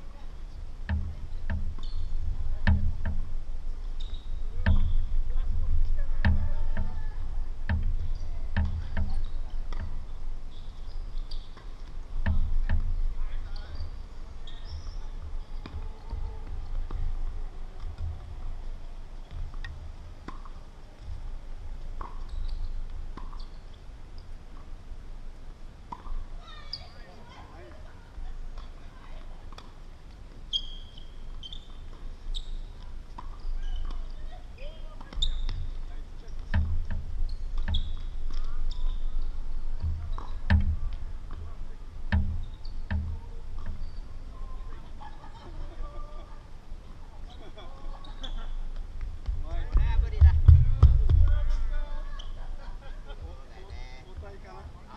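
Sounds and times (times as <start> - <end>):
tennis balls struck by rackets: 0.8 - 7.0, 7.6 - 21.2, 21.8 - 24.8, 25.9 - 26.4, 32.8 - 44.4.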